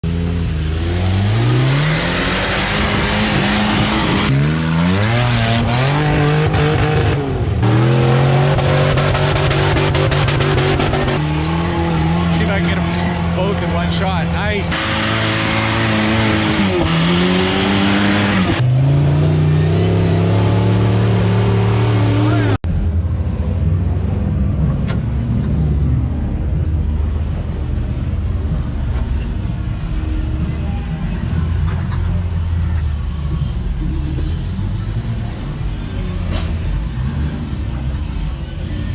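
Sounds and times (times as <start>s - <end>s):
off-road engines revving hard: 0.0s - 22.6s.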